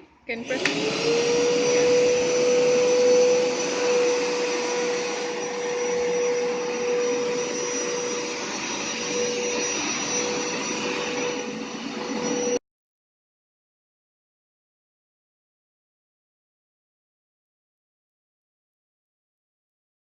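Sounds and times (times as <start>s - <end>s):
carpet washer motor whine: 0.3s - 12.6s.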